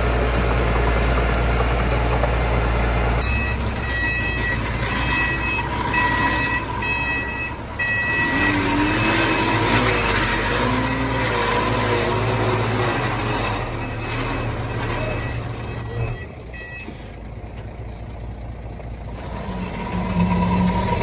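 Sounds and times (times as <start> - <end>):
diesel machinery rumbling: 0.0 - 21.0
reverse warning alarm beeping: 3.2 - 17.4.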